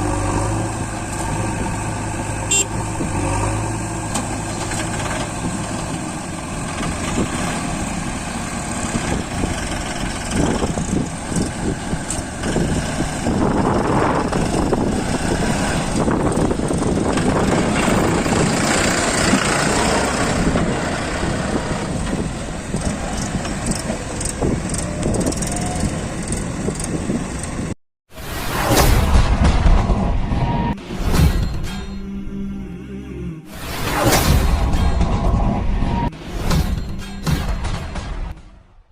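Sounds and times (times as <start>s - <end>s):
tractor engine running: 0.0s - 27.8s.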